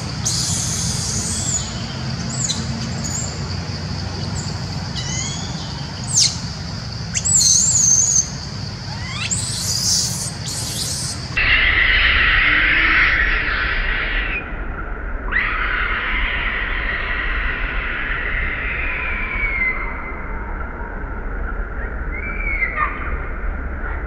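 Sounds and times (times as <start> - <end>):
steady low hum: 0.0 - 11.4
wild birds chirping and whistling: 0.0 - 14.5.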